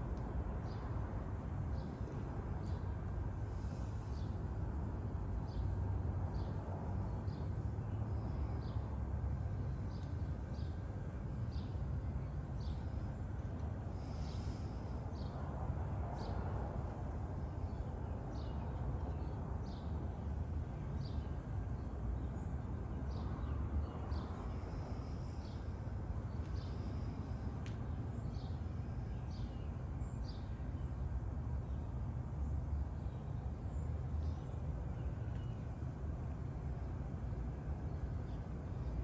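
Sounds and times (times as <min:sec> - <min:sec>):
low outdoor rumble: 0:00.0 - 0:39.0.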